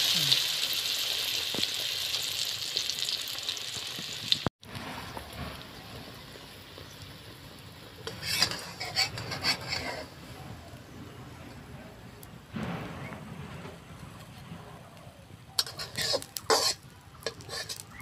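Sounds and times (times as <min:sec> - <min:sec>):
food sizzling in hot oil: 0:00.0 - 0:10.3, 0:15.6 - 0:18.0
metal spatula scraping a pan: 0:08.0 - 0:10.4, 0:15.6 - 0:18.0.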